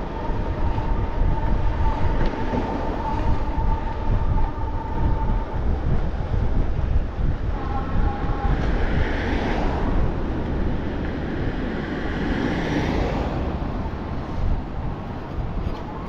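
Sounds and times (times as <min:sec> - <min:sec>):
wind rumbling on microphone: 0:00.0 - 0:16.0
passing vehicle rushing: 0:07.8 - 0:16.0.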